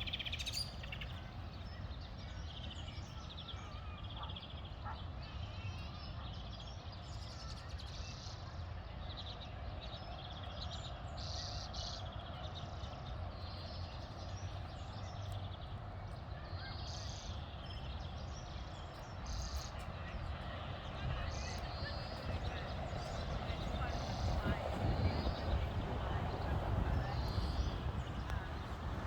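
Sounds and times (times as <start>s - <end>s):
low background rumble: 20.2s - 29.0s.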